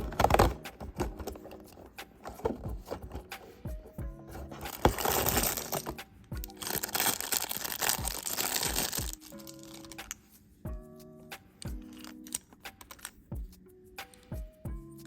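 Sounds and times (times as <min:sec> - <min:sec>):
packaging crinkling and rustling: 0:00.0 - 0:03.3, 0:04.6 - 0:10.2.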